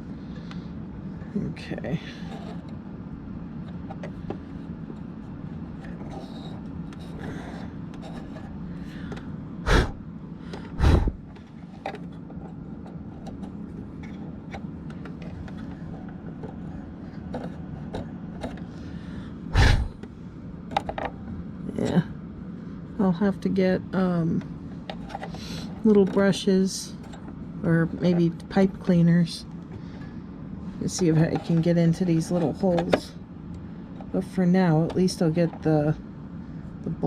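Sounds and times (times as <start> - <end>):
steady low hum: 0.0 - 37.0
clicks and scrapes of hand work: 5.8 - 9.3, 10.5 - 18.8, 24.8 - 26.3.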